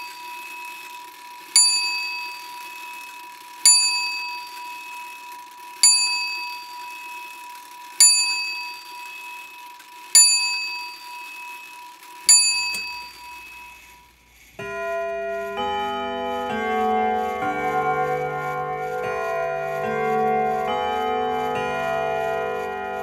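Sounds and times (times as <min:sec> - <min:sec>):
small bell ringing: 0:00.0 - 0:23.0
music of held chords: 0:14.6 - 0:23.0.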